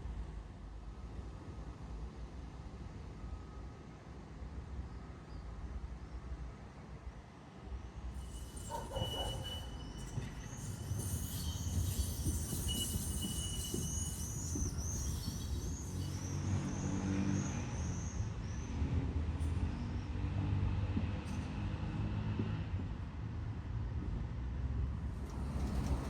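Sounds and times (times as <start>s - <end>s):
tram rumbling on rails: 7.6s - 26.0s
wheels squealing: 8.2s - 17.0s, 25.2s - 26.0s.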